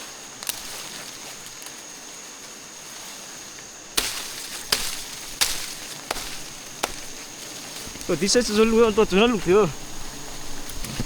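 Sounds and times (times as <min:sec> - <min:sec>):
sharp knocks: 0:04.0 - 0:07.2.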